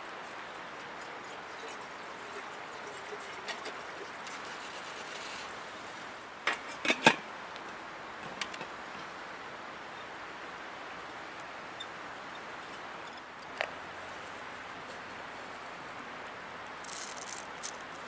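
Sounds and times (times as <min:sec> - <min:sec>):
river flowing: 0:00.0 - 0:06.5, 0:07.2 - 0:18.0.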